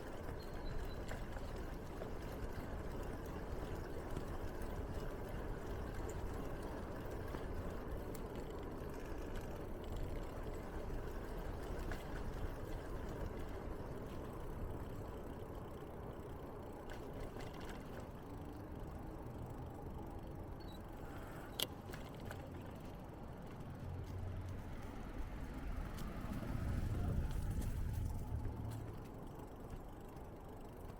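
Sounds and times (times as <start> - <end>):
bicycle tyre noise: 0.0 - 19.8, 20.6 - 30.9
wind on microphone: 26.3 - 28.6.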